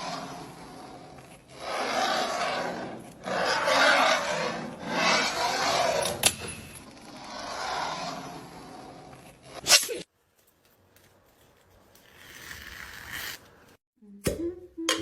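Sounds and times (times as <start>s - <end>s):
rasping scraping strokes: 0.0s - 9.7s.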